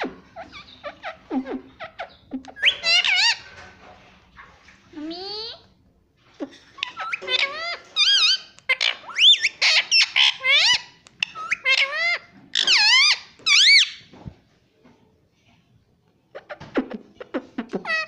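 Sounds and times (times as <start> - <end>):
parrot chattering: 0.0 - 3.4, 6.4 - 14.0, 16.3 - 18.0.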